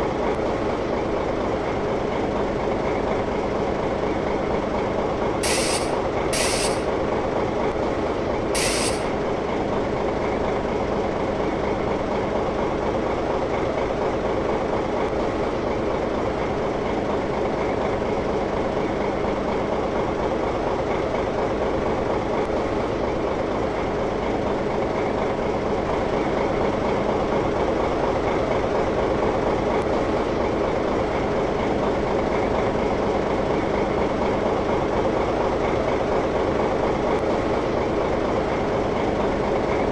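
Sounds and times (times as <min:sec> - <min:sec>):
rail vehicle motor humming: 0:00.0 - 0:39.9
short hisses: 0:05.4 - 0:06.9, 0:08.6 - 0:09.1.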